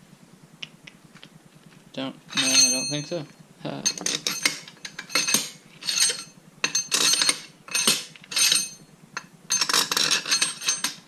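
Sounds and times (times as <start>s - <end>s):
steel bolts clinking: 2.3s - 11.0s.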